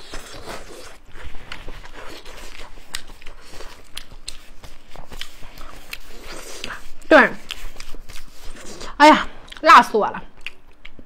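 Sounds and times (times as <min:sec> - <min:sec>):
person chewing: 0:00.0 - 0:09.7, 0:10.3 - 0:11.0.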